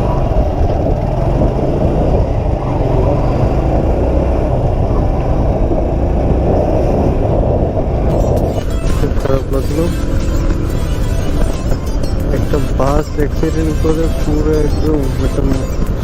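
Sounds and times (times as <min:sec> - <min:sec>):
motorcycle engine and wind noise: 0:00.0 - 0:16.0.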